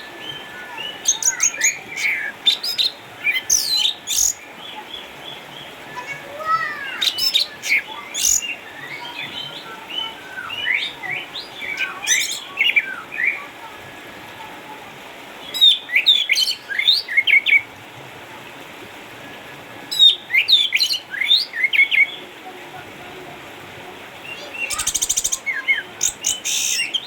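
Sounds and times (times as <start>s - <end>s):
bird singing whistled notes: 0.0s - 4.4s, 7.0s - 13.5s, 19.8s - 22.2s, 24.2s - 27.0s.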